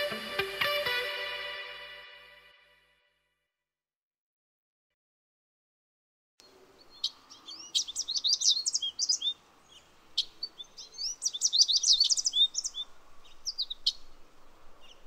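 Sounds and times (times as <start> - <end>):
songbird chirping and twittering: 6.4 - 15.0.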